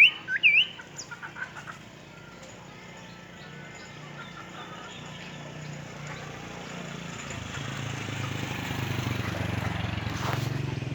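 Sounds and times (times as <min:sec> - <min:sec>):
faint bird chirps: 0:00.0 - 0:06.8
motor engine running: 0:02.7 - 0:10.9.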